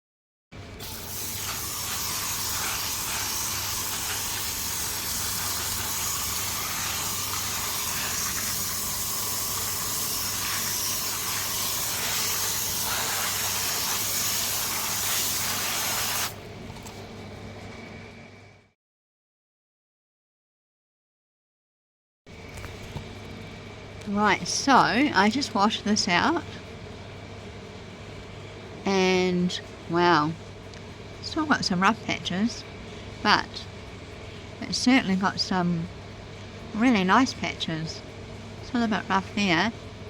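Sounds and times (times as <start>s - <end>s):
water spraying hard on stone: 0.8s - 16.4s
low steady hum: 22.3s - 40.0s.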